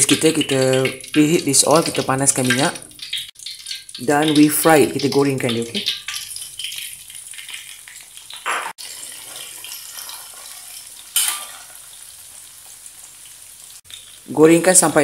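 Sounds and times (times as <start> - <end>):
fish sizzling in hot oil: 0.0 - 15.0
spatula scraping a wok: 8.4 - 11.9.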